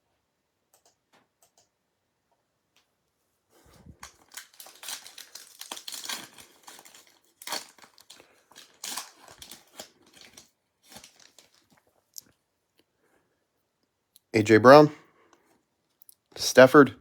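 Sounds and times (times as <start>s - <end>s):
plastic wrapper crinkling and tearing: 3.6s - 12.4s.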